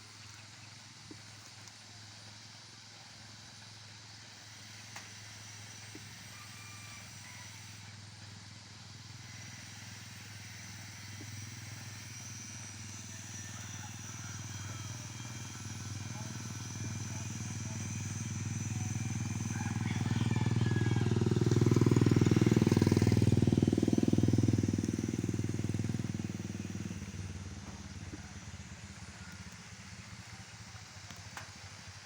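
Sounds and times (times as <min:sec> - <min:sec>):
outdoor background hiss: 0:00.0 - 0:32.0
vehicle engine humming: 0:11.6 - 0:32.0.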